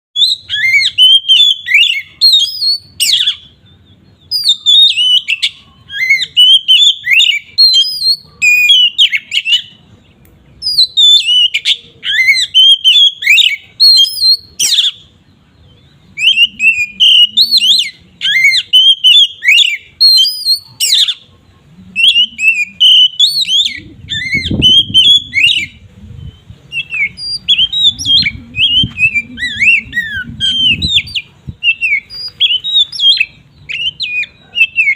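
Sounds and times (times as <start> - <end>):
bird singing whistled song: 0.2 - 21.2, 22.0 - 34.9
low rumble: 23.8 - 31.6.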